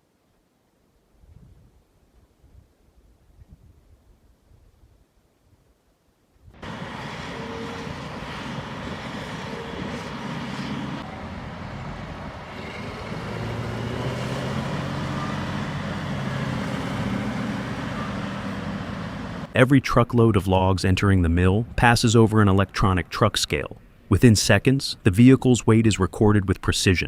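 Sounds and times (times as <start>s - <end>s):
truck diesel engine running: 6.6s - 19.6s.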